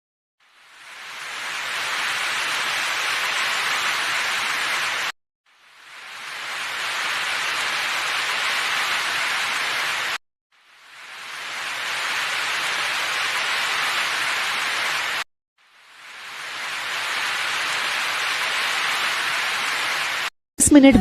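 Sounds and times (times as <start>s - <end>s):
steady hiss: 0.4s - 20.3s.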